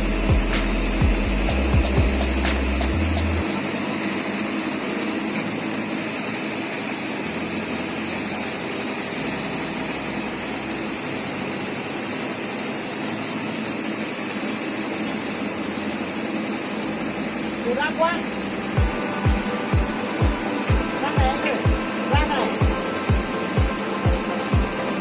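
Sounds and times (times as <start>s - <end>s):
engine droning: 0.0s - 25.0s
faint background music: 16.8s - 25.0s.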